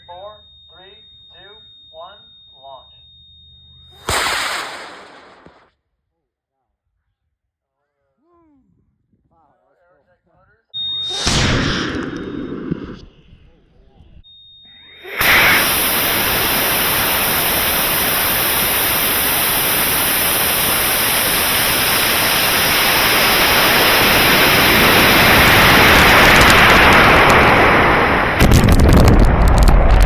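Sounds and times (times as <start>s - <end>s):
air rushing over microphone: 11.1s - 14.2s.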